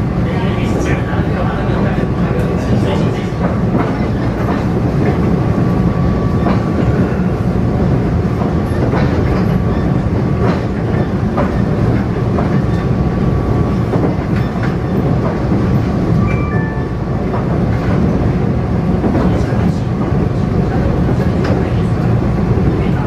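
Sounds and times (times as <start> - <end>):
train low rumble: 0.0 - 23.0.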